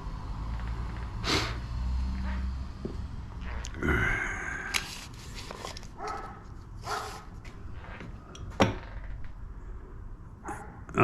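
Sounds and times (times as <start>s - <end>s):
dog barking: 6.0s - 7.3s, 10.4s - 10.9s.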